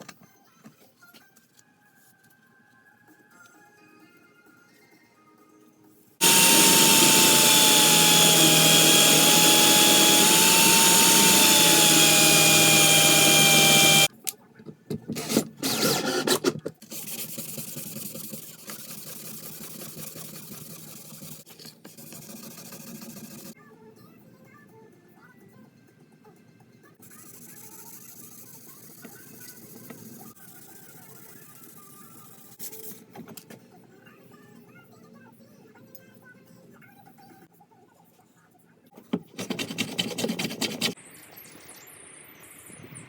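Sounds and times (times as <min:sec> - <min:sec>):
electric power tool running: 0:06.2 - 0:14.1.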